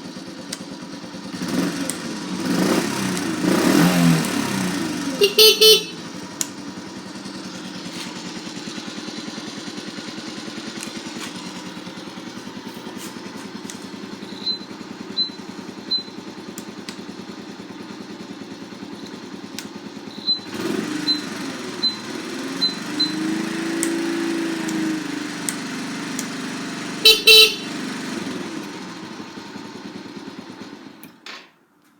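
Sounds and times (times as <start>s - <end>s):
motorcycle engine idling and revving: 0.0s - 31.4s
horn honk: 5.0s - 6.3s, 27.0s - 28.5s
short high beeps: 5.2s - 6.0s, 27.1s - 27.6s.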